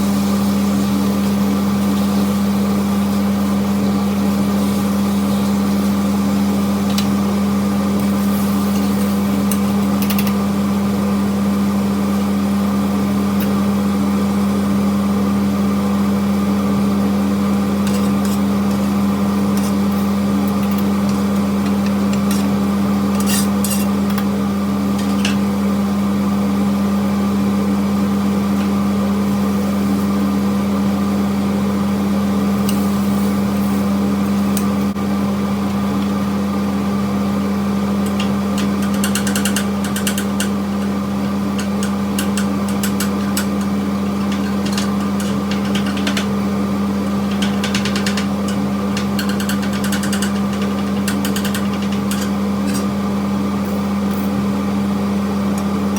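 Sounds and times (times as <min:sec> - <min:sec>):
low motor hum: 0:00.0 - 0:55.9
clicks and rustles: 0:38.1 - 0:46.4.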